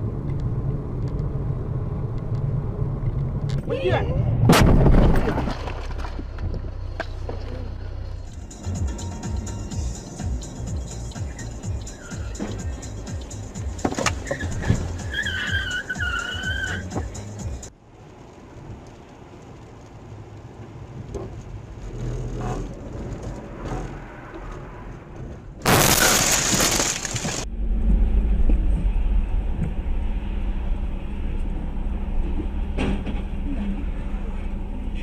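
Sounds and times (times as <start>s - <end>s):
low vehicle rumble: 0.0s - 35.0s
road noise: 0.0s - 35.0s
vehicle crash impact: 4.4s - 7.5s, 25.6s - 30.0s
glass breaking: 25.7s - 27.4s.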